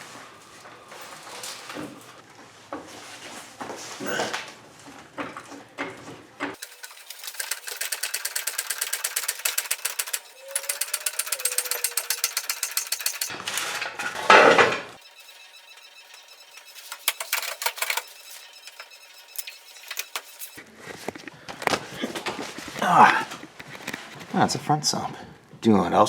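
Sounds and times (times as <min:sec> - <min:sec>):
ratchet wrench clicking: 0:06.6 - 0:13.3.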